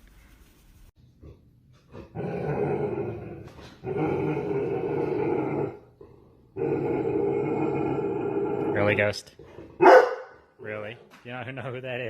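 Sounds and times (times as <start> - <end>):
dog growling: 1.2 - 10.0.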